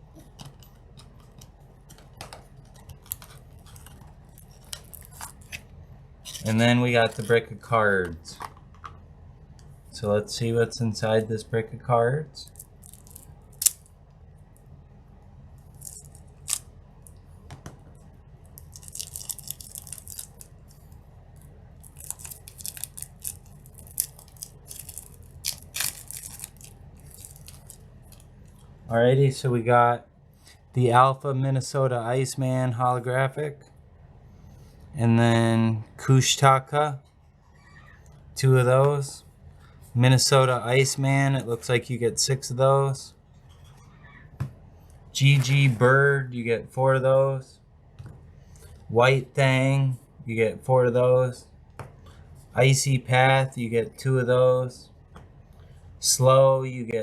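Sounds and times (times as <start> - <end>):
packaging tearing and crinkling: 2.9 - 5.6, 6.3 - 7.4, 12.5 - 13.9, 15.7 - 16.6, 18.6 - 20.8, 21.8 - 28.3.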